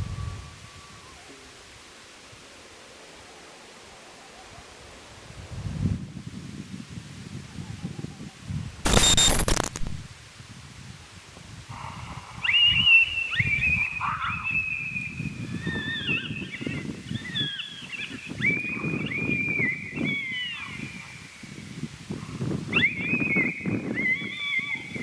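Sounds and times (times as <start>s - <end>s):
coyotes howling and yipping: 11.7s - 25.0s.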